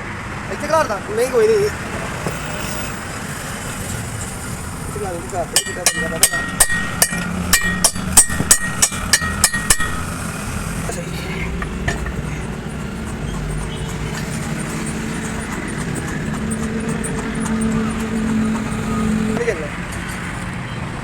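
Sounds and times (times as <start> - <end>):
hammer striking metal joint: 5.6 - 10.3, 11.6 - 17.8.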